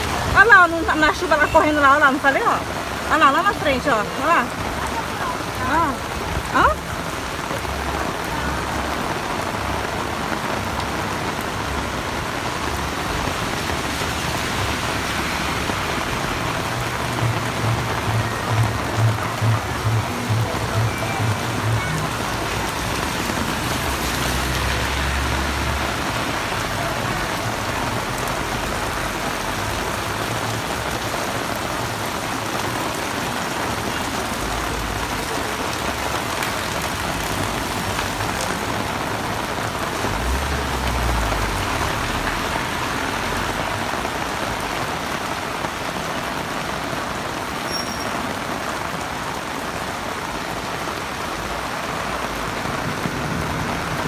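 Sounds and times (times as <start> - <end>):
heavy rain pouring: 0.0 - 54.0
low rumbles: 4.5 - 31.0.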